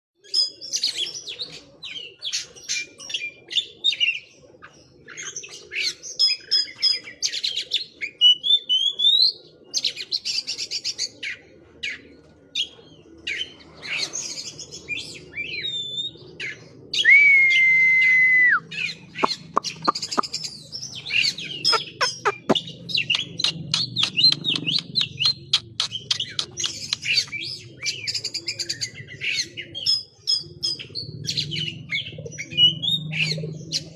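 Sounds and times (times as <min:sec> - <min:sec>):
songbird singing varied song: 0:17.0 - 0:29.1
bird sharp clicks: 0:19.2 - 0:20.4, 0:21.7 - 0:27.4.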